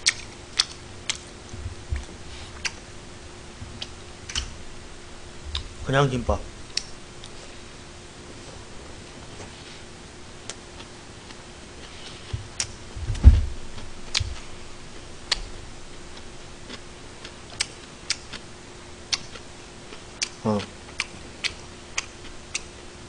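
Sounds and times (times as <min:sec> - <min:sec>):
sharp mouth clicks: 0:00.0 - 0:01.3, 0:02.0 - 0:02.8, 0:06.7 - 0:07.4
man chewing food: 0:00.0 - 0:05.8, 0:06.6 - 0:09.5, 0:10.4 - 0:13.0, 0:13.6 - 0:22.8
low thump: 0:13.0 - 0:14.4.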